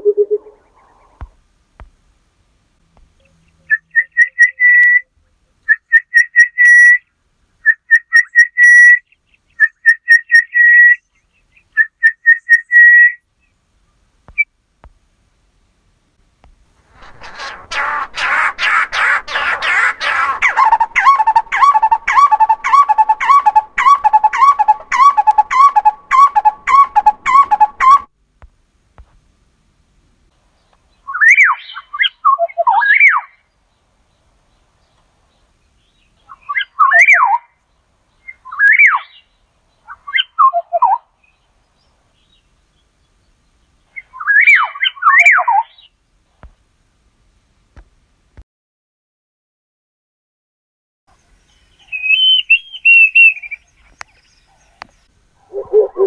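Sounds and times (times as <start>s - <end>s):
bird quickly repeated notes: 0.0s - 0.6s, 55.5s - 56.0s
bird whistled gliding phrases: 0.0s - 1.0s, 20.4s - 28.1s, 31.1s - 33.3s, 38.2s - 39.2s, 44.0s - 45.8s, 51.8s - 54.8s, 55.4s - 56.0s.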